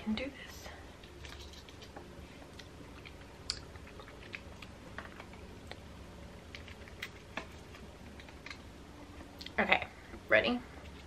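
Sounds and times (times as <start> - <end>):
person chewing: 1.0 - 8.7
wet mouth clicks and smacks: 1.2 - 4.7.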